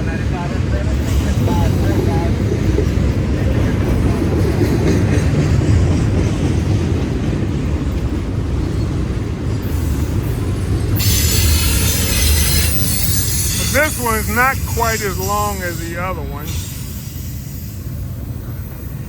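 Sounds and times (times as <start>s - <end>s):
train wheels rumbling on track: 0.0s - 19.0s
faint wheel squeal: 11.0s - 14.3s.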